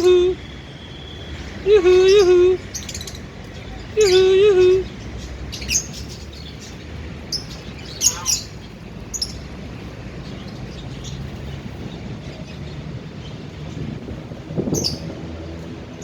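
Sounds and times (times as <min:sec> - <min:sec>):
low background hum: 0:00.0 - 0:14.5
cockatiel chirping: 0:08.0 - 0:08.6.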